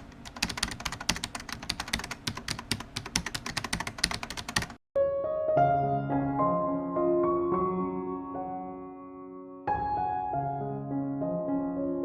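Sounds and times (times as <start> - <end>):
keyboard keys typing: 0.0 - 4.8
soft piano melody: 4.3 - 12.0.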